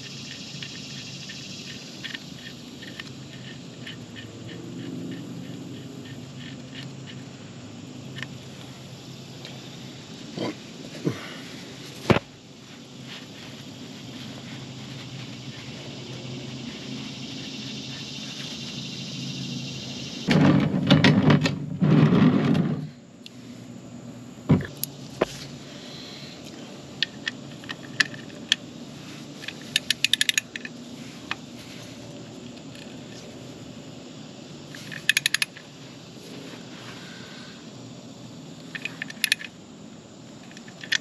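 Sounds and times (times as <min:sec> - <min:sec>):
handling noise bursts: 0:26.6 - 0:33.6, 0:34.7 - 0:37.0, 0:38.6 - 0:39.6
wrench metallic clicks: 0:29.4 - 0:30.7, 0:34.8 - 0:35.6, 0:38.7 - 0:39.5.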